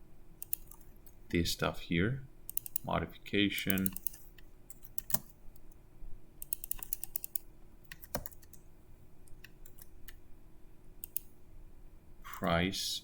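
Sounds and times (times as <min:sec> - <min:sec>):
faint steady hum: 0:00.0 - 0:13.0
typing on a keyboard: 0:00.4 - 0:00.9, 0:03.7 - 0:05.3, 0:06.4 - 0:08.6, 0:09.4 - 0:10.2.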